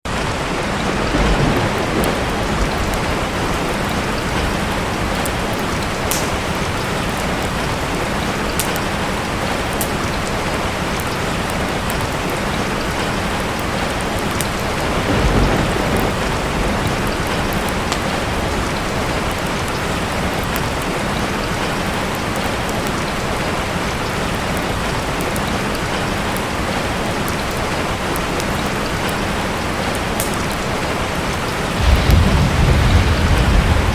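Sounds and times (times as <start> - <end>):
heavy rain: 0.0 - 33.9
low rumbles: 31.7 - 33.9.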